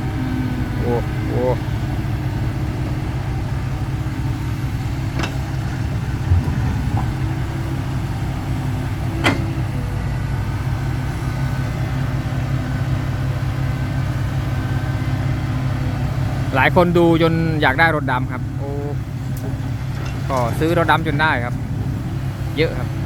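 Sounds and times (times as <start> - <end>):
diesel engine idling: 0.0 - 23.0
sharp metallic knocks: 5.1 - 9.6.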